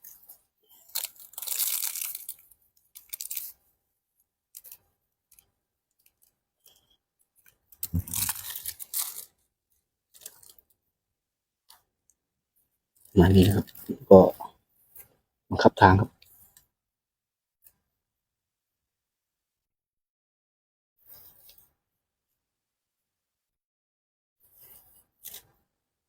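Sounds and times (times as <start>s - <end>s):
dry leaves crunching and rustling: 0.9s - 2.3s, 8.0s - 9.2s
twigs snapping: 7.9s - 9.2s.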